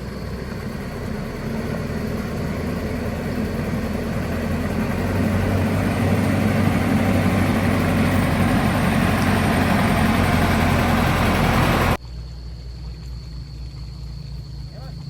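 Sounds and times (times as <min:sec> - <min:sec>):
machine engine running: 0:00.0 - 0:12.0.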